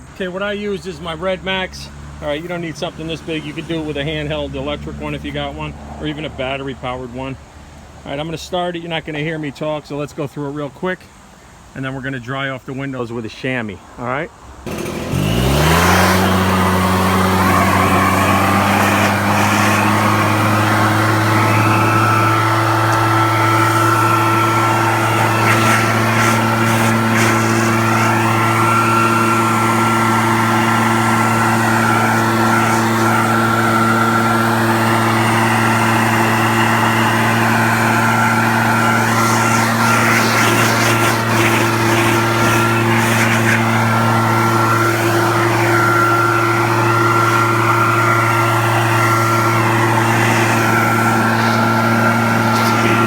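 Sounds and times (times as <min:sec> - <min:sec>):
leaf blower engine running: 0:14.6 - 0:53.0.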